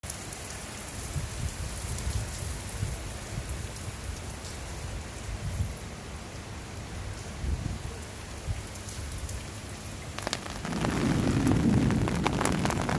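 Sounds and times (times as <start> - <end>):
steady rain falling: 0.0 - 12.9
low rumbles: 10.2 - 12.9.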